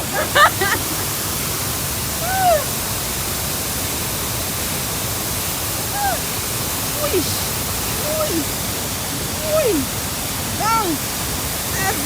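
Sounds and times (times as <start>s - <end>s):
waterfall rushing: 0.0s - 12.0s
rising-and-falling calls: 5.9s - 6.3s.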